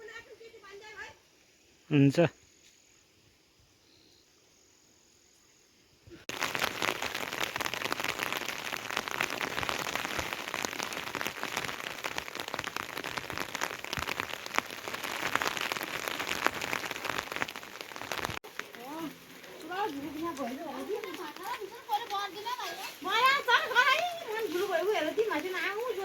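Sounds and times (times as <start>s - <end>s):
heavy rain downpour: 6.3s - 26.0s.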